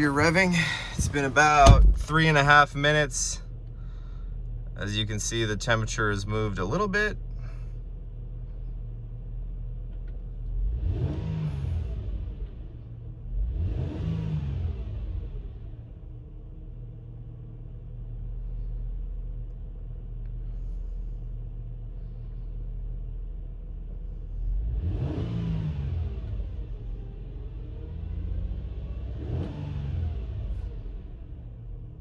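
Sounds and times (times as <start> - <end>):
car engine idling: 0.0 - 10.6
engine revving: 10.5 - 15.8, 24.4 - 26.7, 27.8 - 30.8.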